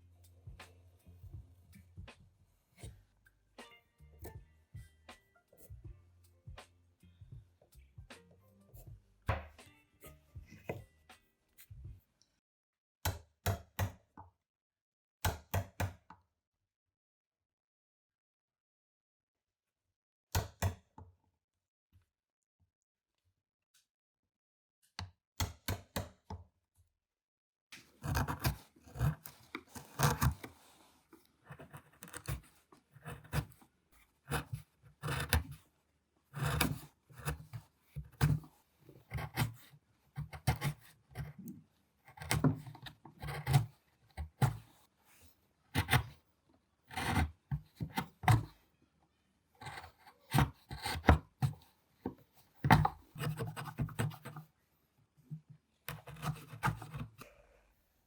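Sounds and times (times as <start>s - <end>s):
hand tools scraping wood: 27.8s - 35.7s, 36.3s - 46.2s, 46.9s - 48.6s, 49.6s - 54.5s, 55.9s - 57.3s.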